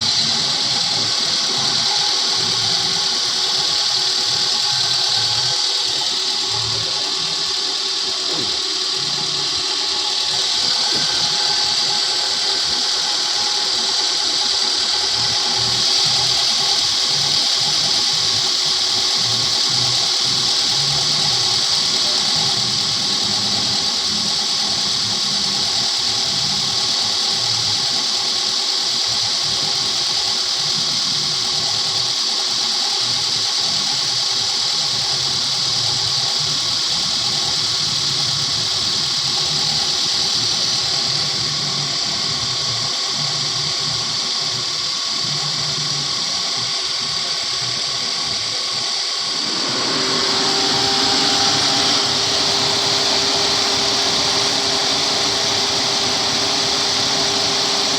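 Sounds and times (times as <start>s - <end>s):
steady hum: 0.0s - 25.8s, 49.2s - 57.9s
strong hiss: 47.0s - 57.9s
car engine running: 49.2s - 57.9s.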